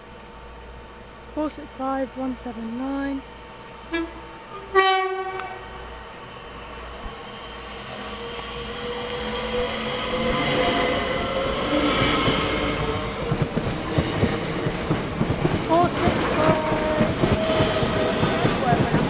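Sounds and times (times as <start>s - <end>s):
train running and wheel noise: 0.0s - 19.0s
train horn blast: 1.4s - 7.6s.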